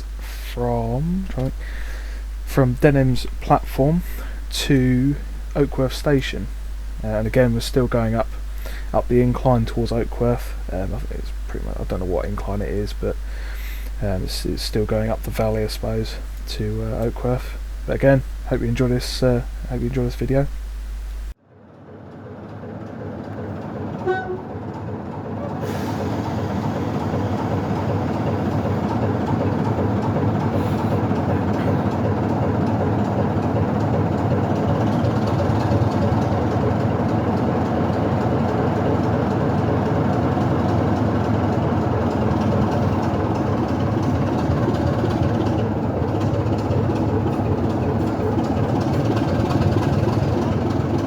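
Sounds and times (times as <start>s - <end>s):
train engine and running gear rumble: 0.0s - 51.0s
high horn or whistle toot: 24.0s - 24.5s.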